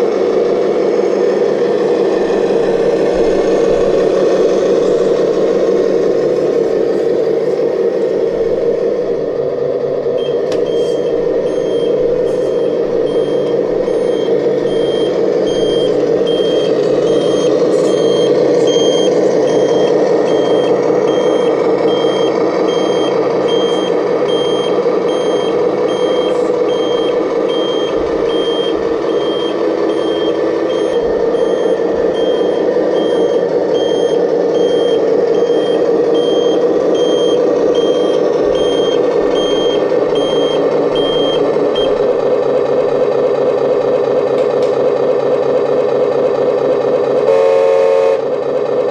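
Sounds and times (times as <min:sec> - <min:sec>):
engine hum: 0:00.0 - 0:48.9
reversing alarm beeping: 0:02.2 - 0:09.4, 0:10.1 - 0:42.1.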